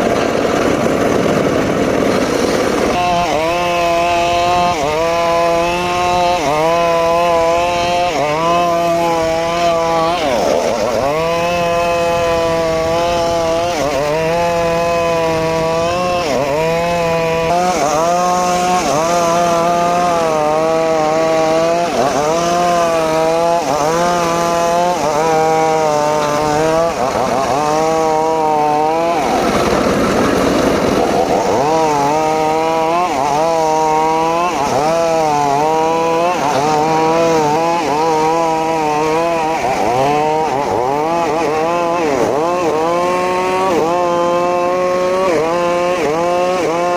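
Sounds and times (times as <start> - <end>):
circular saw cutting wood: 0.0 - 46.9.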